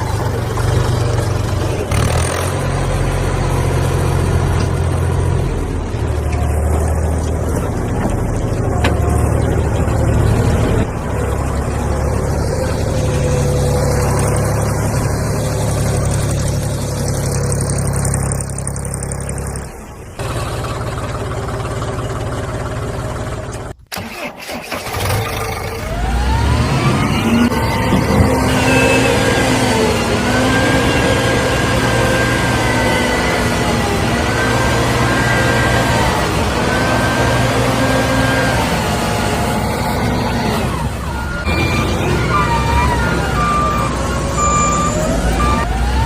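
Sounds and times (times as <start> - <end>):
vehicle engine droning: 0.0 - 46.0.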